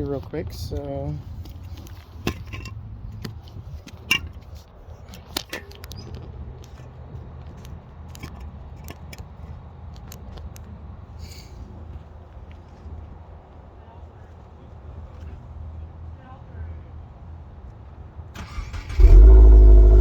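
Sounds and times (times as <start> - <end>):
faint low rumble: 19.0 - 20.0.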